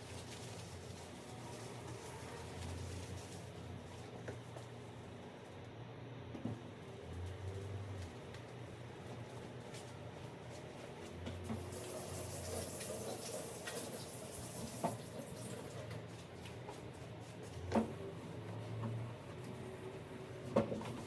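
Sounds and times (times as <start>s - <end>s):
tap water running into sink: 11.6s - 15.6s.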